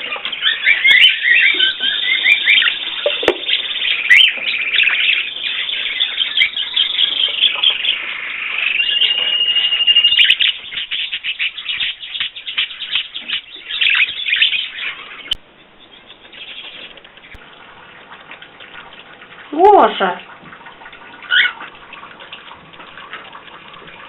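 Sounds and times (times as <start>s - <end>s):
bird chirping and warbling: 0.0s - 17.4s, 21.0s - 22.6s
bird whistle note: 8.7s - 10.4s.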